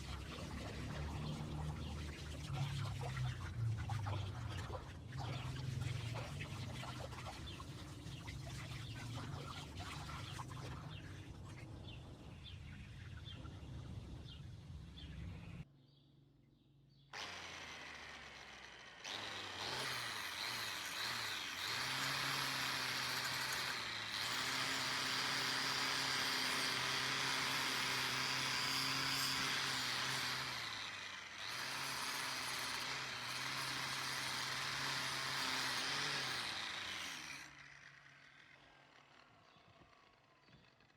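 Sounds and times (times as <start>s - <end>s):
power tool motor running: 17.1s - 40.9s.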